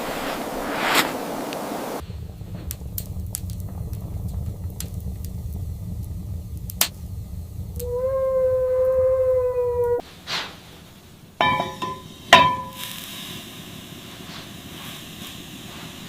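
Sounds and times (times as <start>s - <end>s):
low steady rumble: 0.0s - 16.0s
rushing wind-like noise: 0.0s - 16.0s
sharp clicks and crackles: 2.0s - 10.0s.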